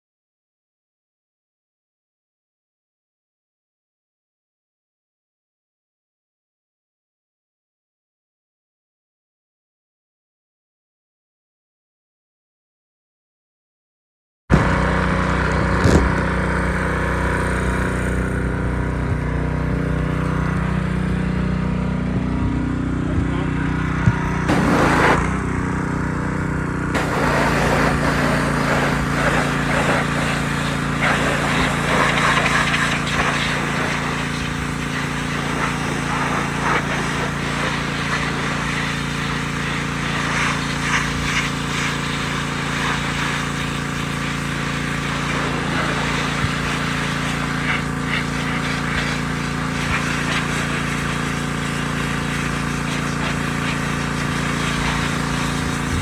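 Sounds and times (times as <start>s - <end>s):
road noise: 14.5s - 30.1s
truck engine droning: 14.5s - 32.0s.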